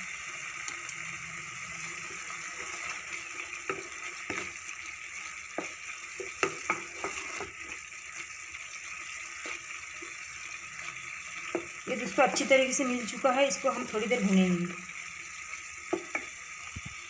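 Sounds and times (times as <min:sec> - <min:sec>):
masala sizzling in oil: 0:00.0 - 0:17.0
spatula scraping a pan: 0:01.8 - 0:12.6.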